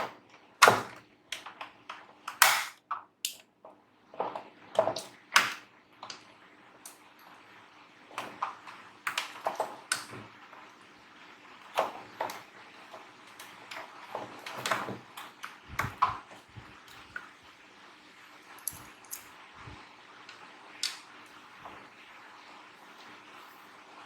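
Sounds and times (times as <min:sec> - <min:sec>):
faint steady hum: 0:00.0 - 0:24.0
clicks of parts and tools handled: 0:18.6 - 0:19.3.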